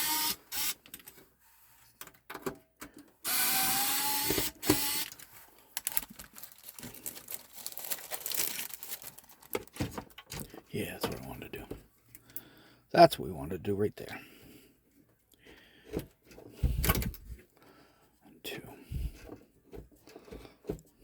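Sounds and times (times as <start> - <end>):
cordless drill whine: 0.0 - 0.8, 3.2 - 5.2.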